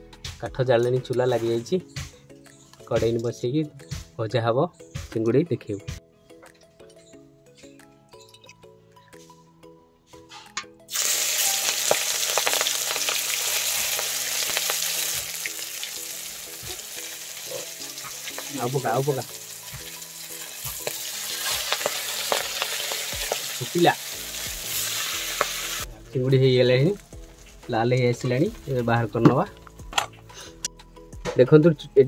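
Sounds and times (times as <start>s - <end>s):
oil crackling pops: 10.9s - 16.0s, 20.6s - 23.8s, 24.4s - 25.9s
prawns sizzling in hot oil: 10.9s - 25.9s.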